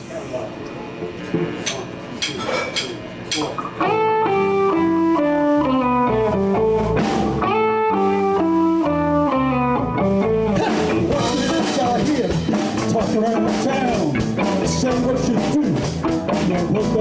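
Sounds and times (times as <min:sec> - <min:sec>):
drums: 0:00.9 - 0:17.0
electric guitar blues lick: 0:03.7 - 0:17.0
bass guitar: 0:03.8 - 0:17.0.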